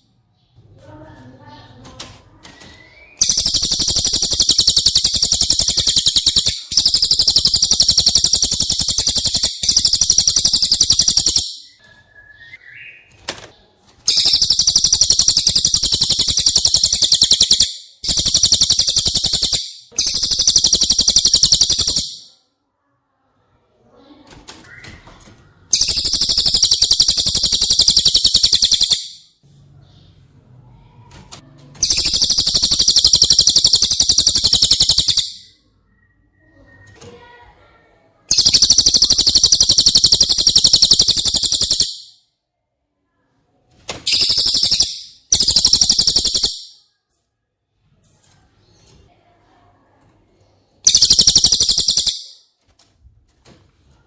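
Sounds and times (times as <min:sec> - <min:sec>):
bird trilling high-pitched phrases: 0:02.4 - 0:13.1, 0:14.1 - 0:22.4, 0:25.7 - 0:29.3, 0:31.8 - 0:37.6, 0:38.2 - 0:42.2, 0:44.1 - 0:46.9, 0:50.8 - 0:52.4.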